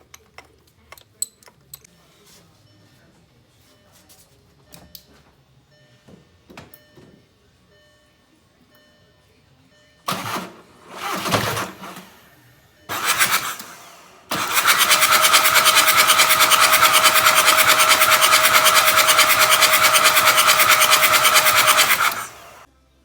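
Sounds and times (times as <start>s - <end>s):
engine cranking: 10.1s - 12.2s, 12.9s - 22.7s
car engine running: 12.9s - 22.7s.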